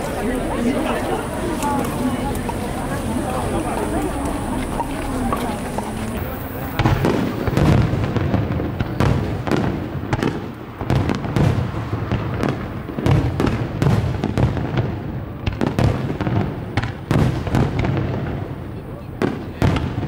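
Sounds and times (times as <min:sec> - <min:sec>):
fireworks shells bursting: 0:00.0 - 0:11.8.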